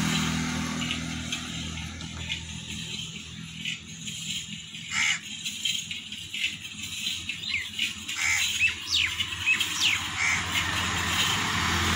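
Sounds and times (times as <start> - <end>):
small birds chirping: 7.2 - 10.6.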